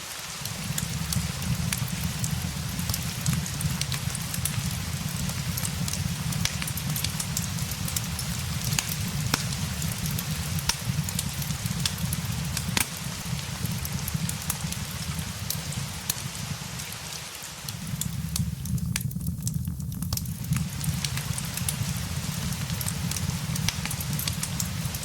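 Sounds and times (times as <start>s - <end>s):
fireplace crackling: 0.0s - 25.0s
steady rain: 0.0s - 25.0s
low rumble: 17.8s - 25.0s.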